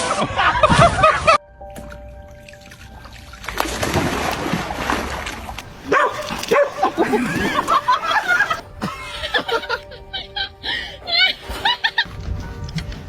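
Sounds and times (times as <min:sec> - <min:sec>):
dog splashing into water: 0:01.7 - 0:08.7.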